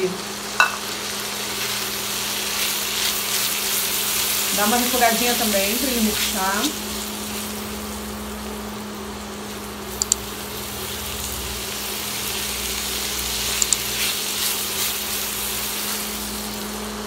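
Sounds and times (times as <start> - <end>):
food sizzling in frying pan: 0.0 - 17.0
spatula stirring in pan: 1.6 - 5.0
short sharp clicks: 10.0 - 10.2.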